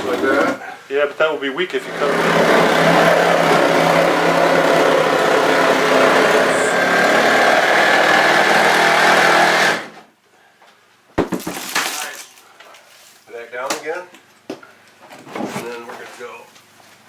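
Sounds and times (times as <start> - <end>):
power saw cutting: 0.0 - 0.6, 1.8 - 10.0.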